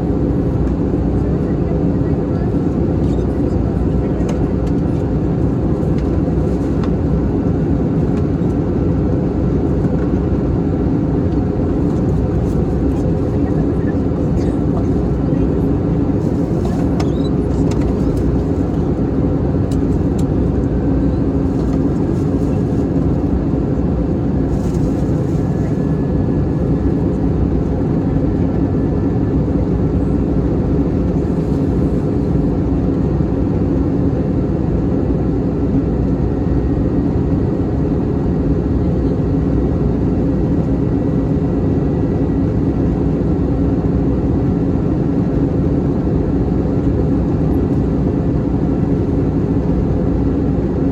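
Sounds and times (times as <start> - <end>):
airplane cabin drone: 0.0 - 50.9.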